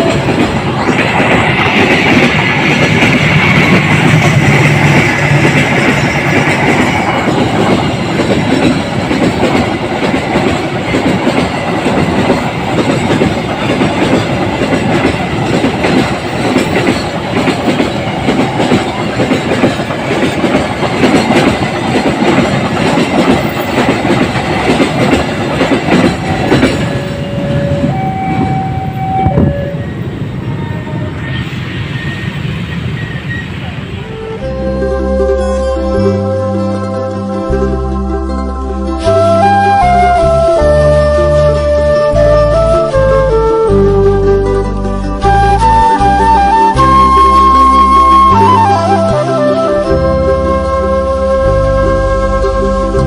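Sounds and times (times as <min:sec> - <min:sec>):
train wheels clattering on rails: 0:00.0 - 0:34.6
train horn: 0:26.2 - 0:32.2, 0:33.8 - 0:37.5.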